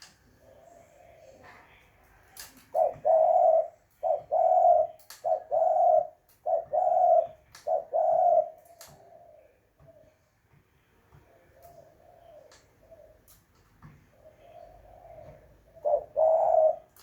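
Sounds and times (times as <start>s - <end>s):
dove cooing: 0.3s - 1.6s, 2.6s - 10.3s, 11.1s - 17.0s.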